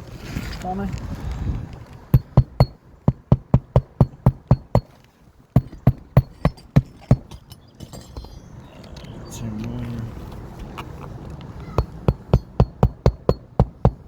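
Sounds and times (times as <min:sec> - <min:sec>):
hammer driving nails into shingle: 0:02.0 - 0:08.4, 0:11.7 - 0:14.0.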